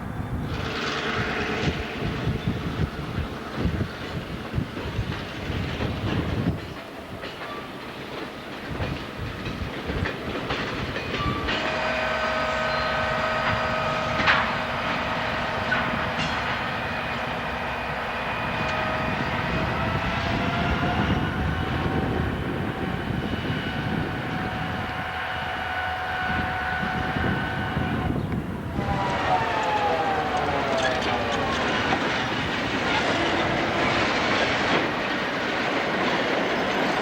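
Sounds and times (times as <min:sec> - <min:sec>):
train wheels clicking over rails: 0:00.4 - 0:37.0
high-pitched multi-tone whine: 0:28.8 - 0:33.0.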